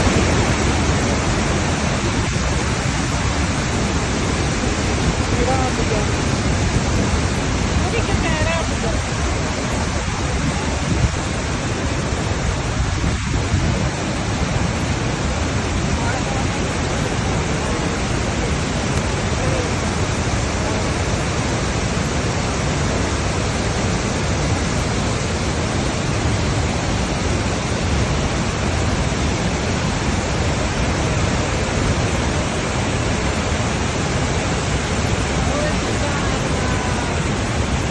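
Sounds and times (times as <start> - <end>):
rush of falling water: 0.0 - 37.9.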